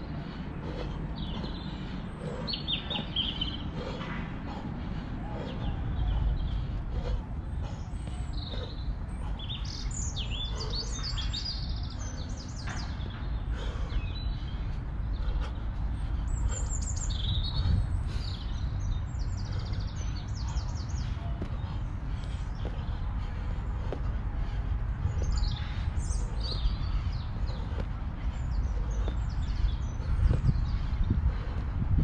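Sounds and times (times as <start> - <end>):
low steady rumble: 0.0 - 32.0
songbirds chirping: 0.0 - 32.0.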